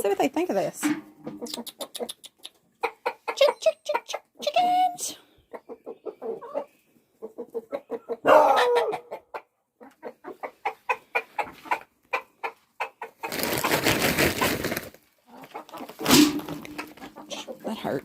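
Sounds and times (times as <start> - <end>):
chickens clucking: 0.0 - 18.0
rustling noise: 13.2 - 17.2.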